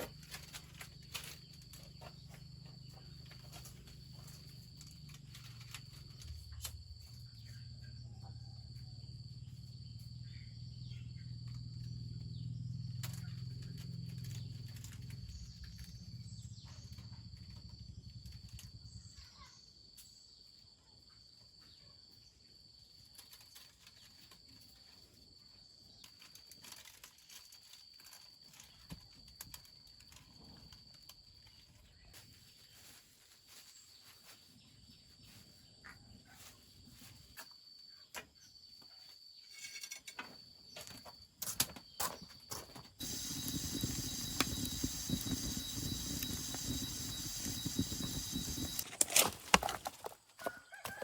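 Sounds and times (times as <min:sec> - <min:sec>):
insect trilling: 0:43.0 - 0:49.7.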